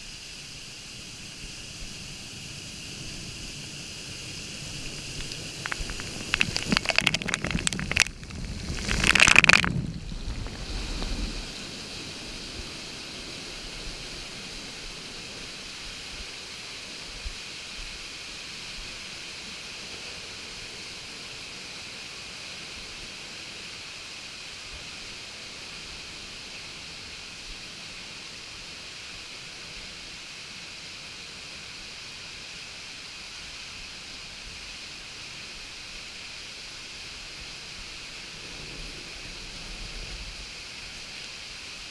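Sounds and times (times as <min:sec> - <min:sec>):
flowing water hiss: 0:00.0 - 0:41.9
water splashing: 0:04.8 - 0:11.4.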